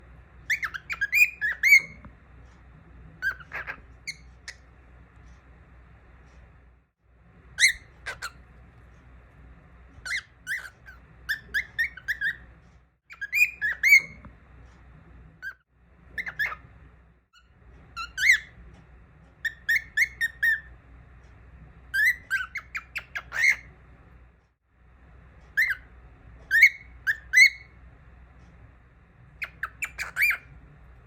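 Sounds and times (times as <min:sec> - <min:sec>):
cockatiel chirping and whistling: 0:00.4 - 0:02.1, 0:03.2 - 0:04.7, 0:07.5 - 0:08.4, 0:10.0 - 0:12.5, 0:13.1 - 0:14.3, 0:15.4 - 0:16.7, 0:17.9 - 0:18.6, 0:19.4 - 0:20.7, 0:21.9 - 0:23.8, 0:25.5 - 0:25.9, 0:26.5 - 0:27.8, 0:29.3 - 0:30.6.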